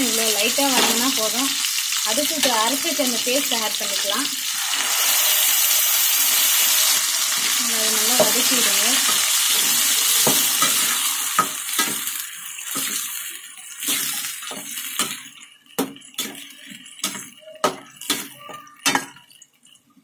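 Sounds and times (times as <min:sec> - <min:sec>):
paste sizzling in hot oil: 0:00.0 - 0:19.8
metal spatula scraping pan: 0:04.6 - 0:13.2.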